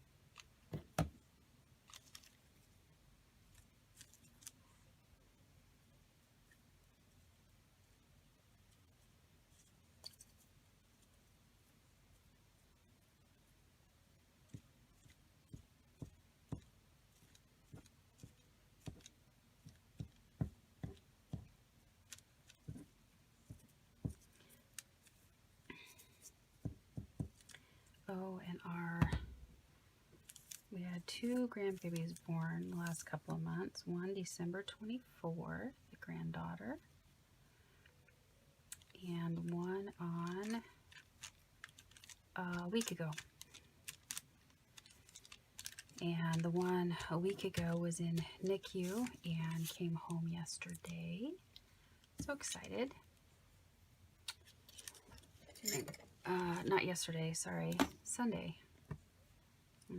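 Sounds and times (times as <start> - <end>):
paper and craft materials tapping: 15.5 - 21.6, 22.5 - 24.4, 26.6 - 27.6, 44.8 - 49.8.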